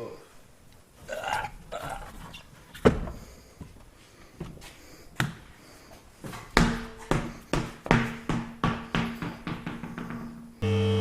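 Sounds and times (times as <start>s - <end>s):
sharp knocks: 6.6s - 10.5s.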